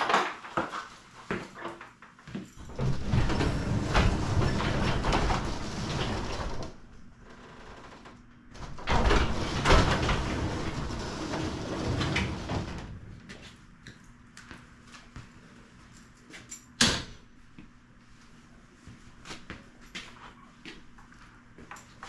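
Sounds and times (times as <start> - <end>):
garage door rumbling and clattering: 2.6 - 13.4.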